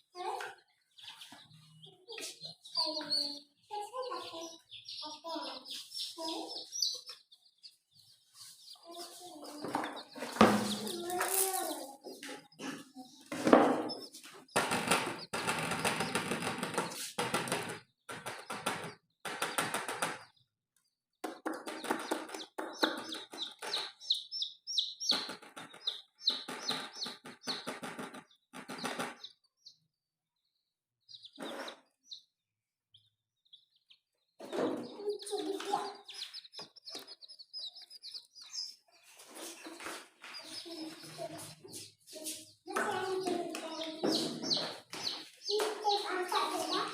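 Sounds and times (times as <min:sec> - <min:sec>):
baby chicks peeping: 0:00.0 - 0:46.9
noisy scuffling: 0:08.1 - 0:14.5, 0:38.2 - 0:46.9.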